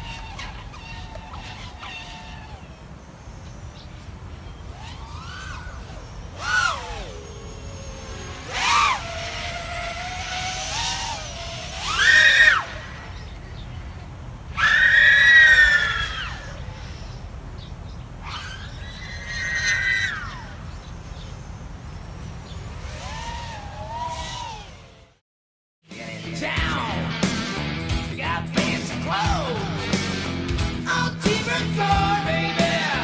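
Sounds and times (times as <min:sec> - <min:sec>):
quadcopter motors whining: 0:00.0 - 0:25.2.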